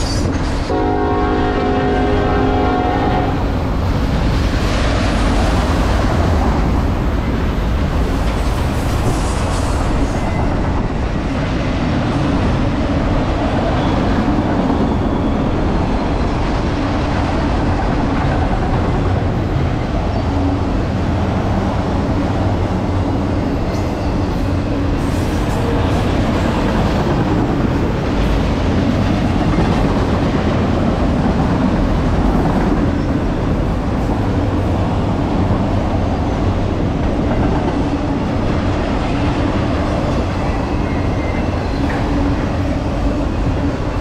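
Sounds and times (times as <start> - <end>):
wheels on rail: 0.0 - 44.0
train horn: 0.7 - 3.6.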